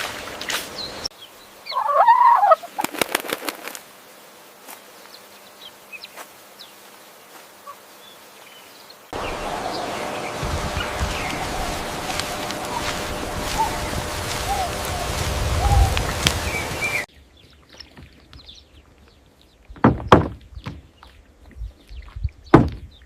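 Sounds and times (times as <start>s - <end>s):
steady rush of outdoor noise: 0.0s - 17.4s
animal sounds: 1.6s - 3.1s, 9.2s - 19.7s
sharp flapping or clattering: 2.8s - 3.9s.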